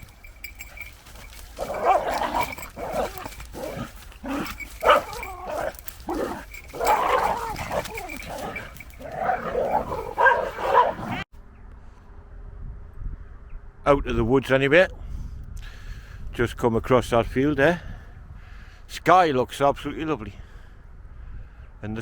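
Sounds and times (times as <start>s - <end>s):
dogs growling and play-fighting: 0.0s - 11.3s.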